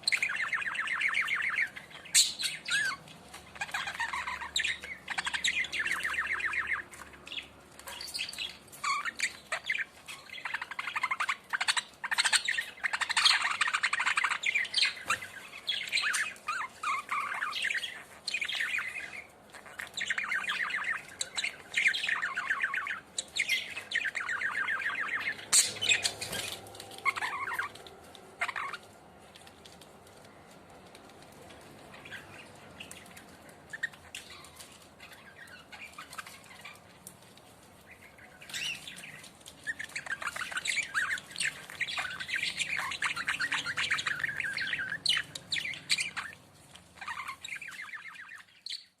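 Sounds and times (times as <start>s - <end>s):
budgerigar chirping: 0.0s - 27.8s, 28.4s - 28.9s, 37.8s - 49.0s.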